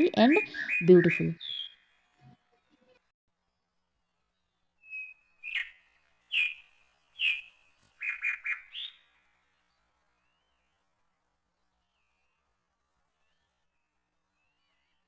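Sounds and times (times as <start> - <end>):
bird chirping: 0.0 - 1.7.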